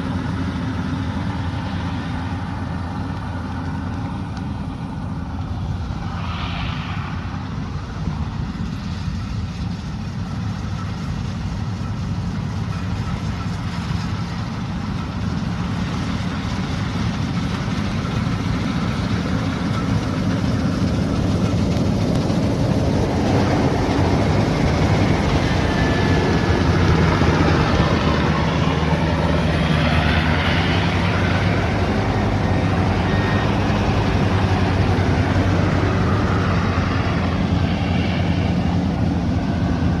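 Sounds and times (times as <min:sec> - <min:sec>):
harvesting machine engine running: 0:00.0 - 0:06.8, 0:07.4 - 0:40.0
rushing machine noise: 0:11.7 - 0:40.0.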